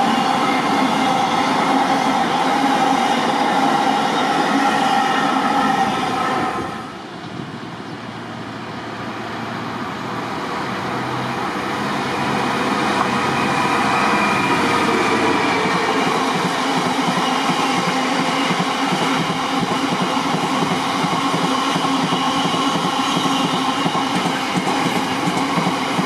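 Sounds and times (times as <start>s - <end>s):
train rolling on rails: 0.0s - 26.0s.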